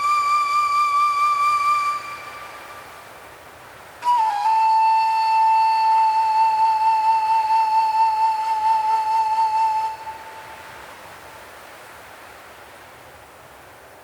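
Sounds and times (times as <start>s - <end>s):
flute-like long note: 0.0s - 3.1s, 4.0s - 10.8s
faint windy hiss: 0.0s - 14.0s.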